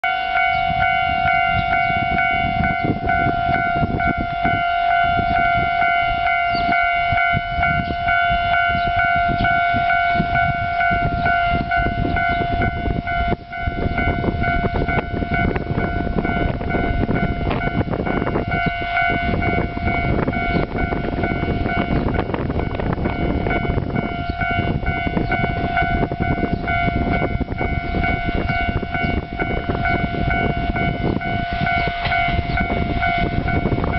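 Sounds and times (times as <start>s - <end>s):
level crossing warning tone: 0.0s - 33.9s
low rumble of approaching railcar: 0.0s - 33.9s.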